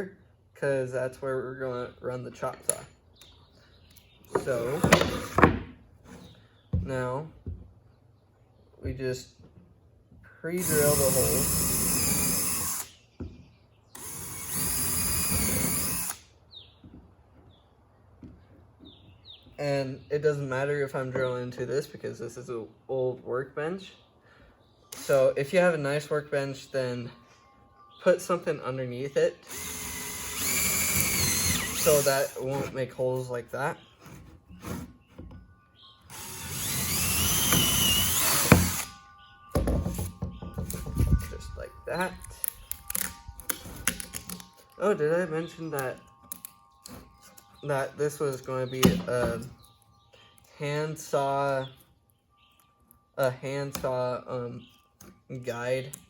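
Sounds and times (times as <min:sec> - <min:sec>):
power drill drilling wood: 0:10.6 - 0:12.9, 0:14.0 - 0:16.2, 0:29.5 - 0:32.5, 0:36.1 - 0:38.9.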